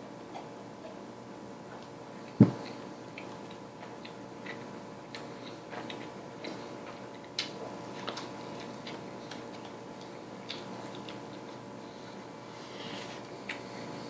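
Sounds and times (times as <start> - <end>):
faint steady hum: 0.0 - 14.0
person chewing with mouth clicks: 1.7 - 12.2.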